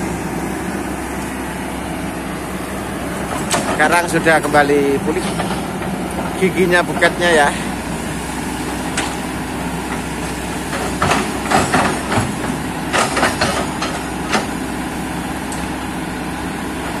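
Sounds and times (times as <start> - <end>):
excavator diesel engine running: 0.0 - 17.0
knocks and clatters: 3.3 - 7.3, 10.7 - 14.6.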